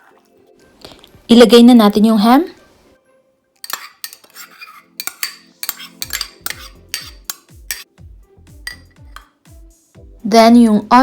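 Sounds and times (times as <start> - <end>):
spoon scraping mixing bowl: 3.6 - 7.9, 8.7 - 9.3.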